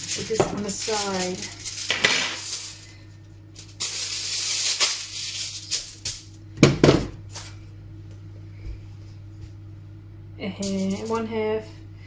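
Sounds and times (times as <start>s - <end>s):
crinkling rustle: 0.0s - 2.9s.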